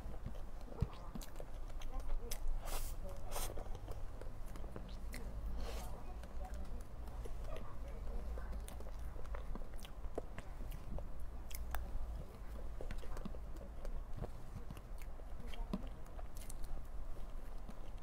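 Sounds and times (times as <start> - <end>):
low steady hum: 0.0 - 18.0
person chewing cake: 0.0 - 18.0.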